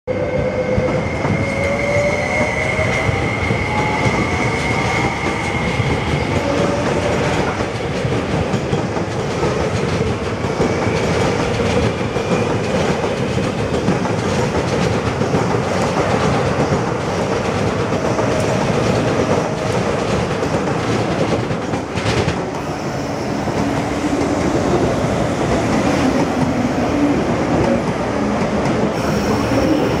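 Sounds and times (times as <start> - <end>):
high wheel squeal: 0.5 - 7.2, 29.0 - 30.0
train wheels clattering: 1.1 - 30.0.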